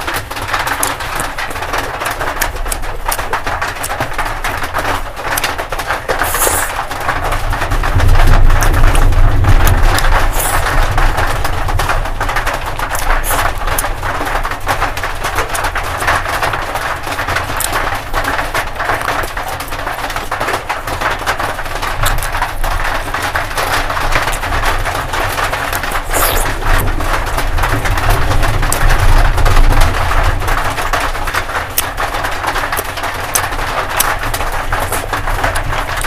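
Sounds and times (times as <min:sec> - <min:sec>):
chewing: 0:00.8 - 0:01.6, 0:02.3 - 0:04.1, 0:06.1 - 0:06.8, 0:09.9 - 0:10.7, 0:12.9 - 0:13.9, 0:17.6 - 0:17.8, 0:22.0 - 0:22.4, 0:25.2 - 0:27.1, 0:33.3 - 0:35.6
small wet mouth clicks: 0:06.2 - 0:06.8, 0:10.3 - 0:10.7, 0:25.7 - 0:26.8.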